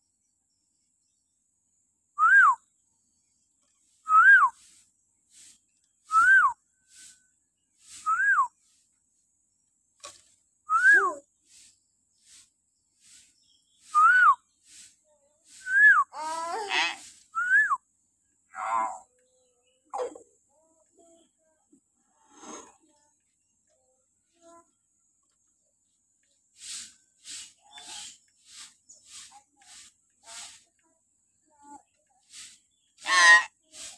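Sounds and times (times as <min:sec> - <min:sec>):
bird shrill whistled calls: 0:17.3 - 0:17.8, 0:27.4 - 0:28.2
harsh complex bird call: 0:32.7 - 0:33.6.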